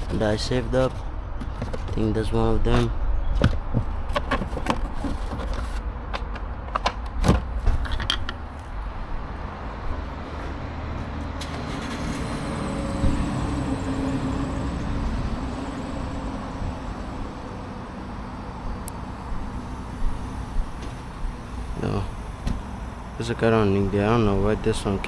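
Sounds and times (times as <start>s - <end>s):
passing motor vehicle rumble: 7.5s - 25.0s.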